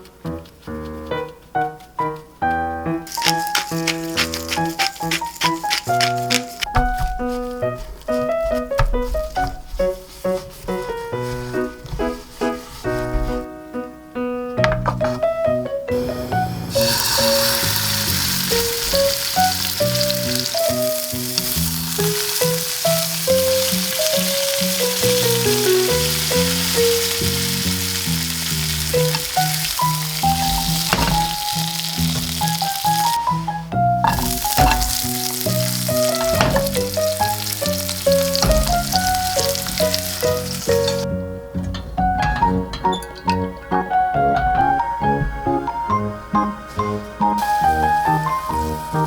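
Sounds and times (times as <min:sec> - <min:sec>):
background music: 0:00.0 - 0:49.0
food sizzling in a frying pan: 0:03.1 - 0:07.1, 0:16.0 - 0:41.1, 0:47.4 - 0:49.0.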